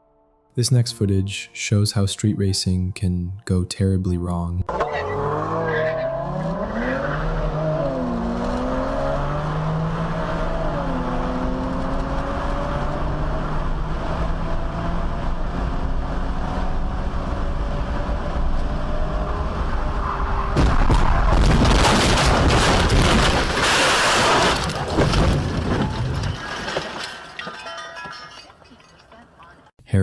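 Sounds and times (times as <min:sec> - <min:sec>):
car engine accelerating: 0:04.7 - 0:21.4
road noise: 0:04.7 - 0:29.8.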